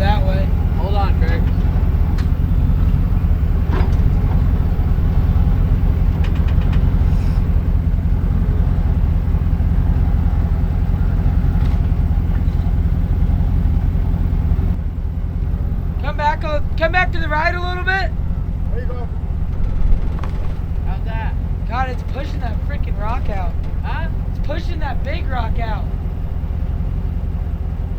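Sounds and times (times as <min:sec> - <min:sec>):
truck engine idling: 0:00.0 - 0:27.9
faint clicks: 0:06.1 - 0:07.6.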